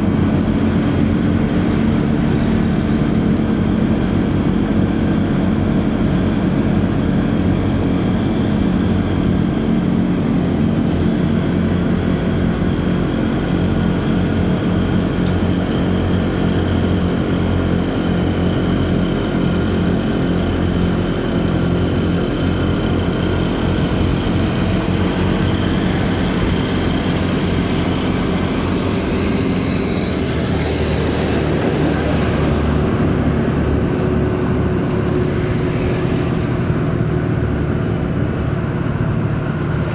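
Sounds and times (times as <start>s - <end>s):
motorcycle engine running: 0.0s - 39.9s
road traffic: 0.0s - 39.9s
high hiss: 22.4s - 36.7s.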